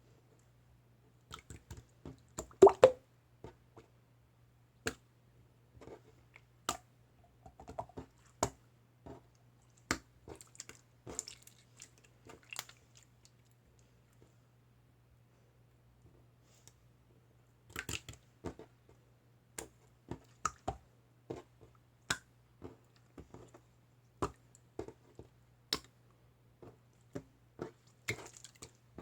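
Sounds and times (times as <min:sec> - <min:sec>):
clicks and taps from handling objects: 0:04.8 - 0:05.0, 0:05.8 - 0:11.2, 0:19.6 - 0:26.0, 0:26.6 - 0:29.0.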